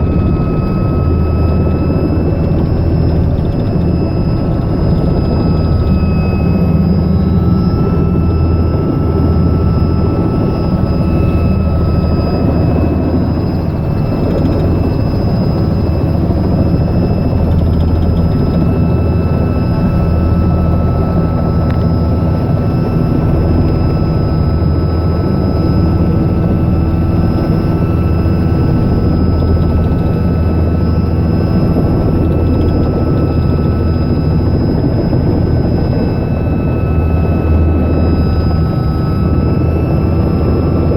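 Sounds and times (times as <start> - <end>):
helicopter rotor throb: 0.0 - 40.9
turbine high whine: 0.0 - 40.9.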